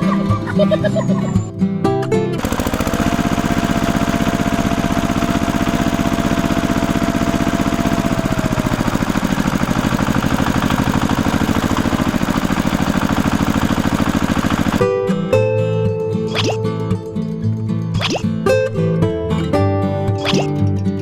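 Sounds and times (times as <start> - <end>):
small engine running: 2.4 - 15.2.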